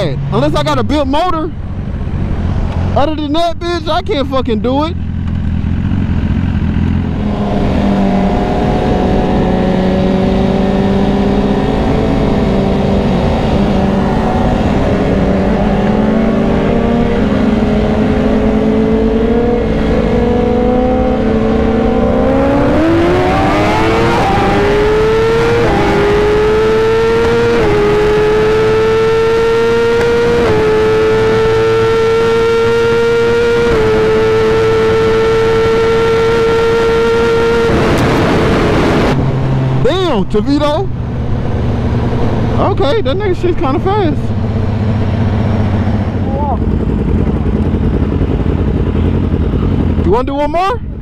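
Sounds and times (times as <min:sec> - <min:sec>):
motorcycle engine revving: 0:04.1 - 0:51.0
wind rush: 0:07.0 - 0:28.9, 0:36.5 - 0:40.2.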